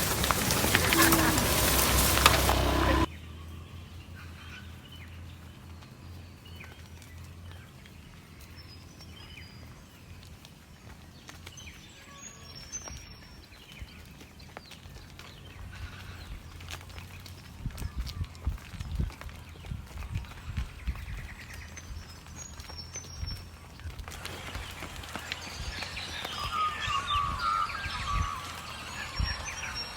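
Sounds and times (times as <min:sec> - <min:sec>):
faint high bird chirps: 0:24.2 - 0:29.9
loud noisy sound: 0:24.2 - 0:29.9.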